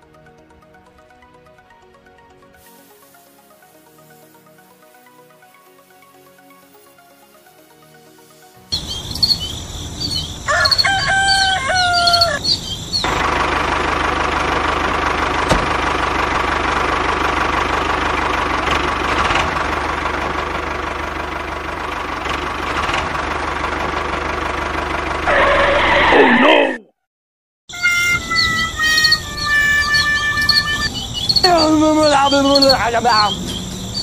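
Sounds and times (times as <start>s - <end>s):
birds chirping: 8.5s - 13.2s, 27.7s - 34.0s
rooster crowing: 10.0s - 12.6s, 25.2s - 26.5s
model tractor motor: 13.0s - 25.8s.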